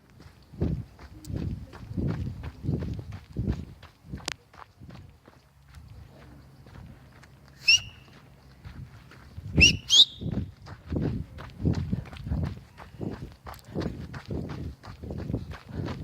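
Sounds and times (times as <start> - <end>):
footsteps on forest trail: 0.0 - 16.0
loud high whistles: 7.6 - 8.1, 9.6 - 10.3.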